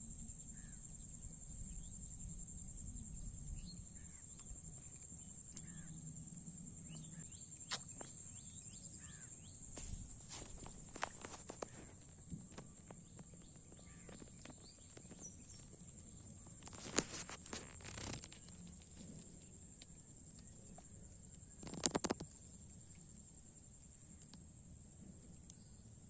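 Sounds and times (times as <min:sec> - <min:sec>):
insect chorus: 0:00.0 - 0:26.0
rustling handling noise: 0:09.7 - 0:13.1, 0:16.5 - 0:19.4.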